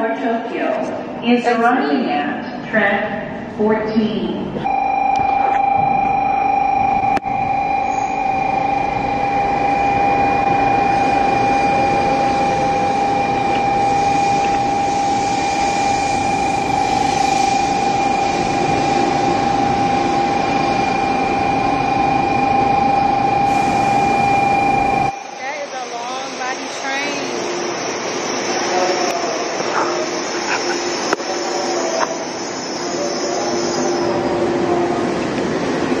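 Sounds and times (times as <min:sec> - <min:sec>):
constant high tone: 0:04.6 - 0:35.0
train rushing noise: 0:08.2 - 0:36.0.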